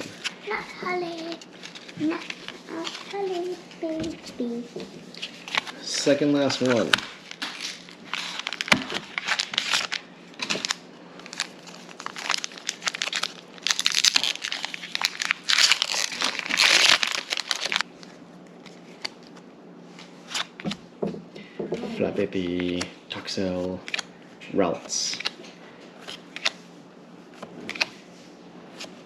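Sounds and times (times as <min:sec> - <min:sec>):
foil wrapper crinkling and tearing: 0:05.2 - 0:17.9.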